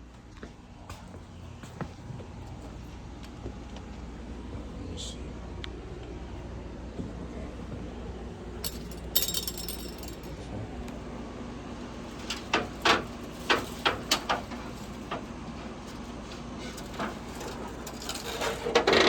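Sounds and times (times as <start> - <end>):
sharp knocks of metal equipment: 8.6 - 10.3
metallic jangle: 8.6 - 10.4.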